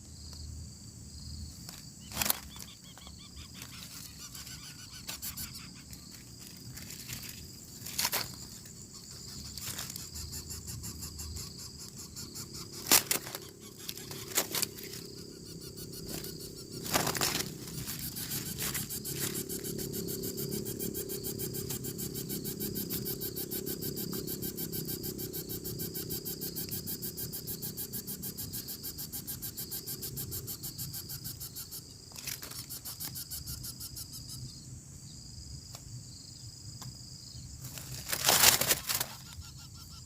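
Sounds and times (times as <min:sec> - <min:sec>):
insects buzzing: 0:00.0 - 0:40.0
fast pulsing buzz: 0:03.5 - 0:34.3.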